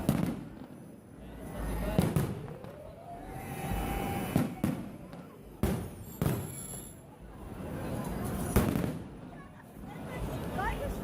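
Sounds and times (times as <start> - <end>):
fireworks bangs with echo: 0.0 - 7.0, 8.3 - 9.3
firework whistling: 2.0 - 7.1.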